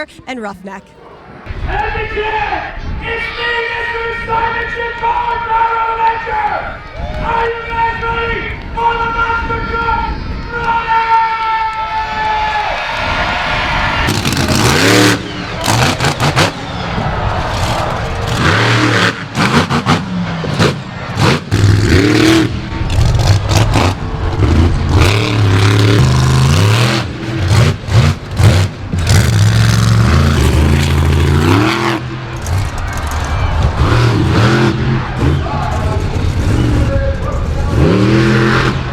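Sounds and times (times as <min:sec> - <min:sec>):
monster truck engine revving: 0:13.8 - 0:38.9.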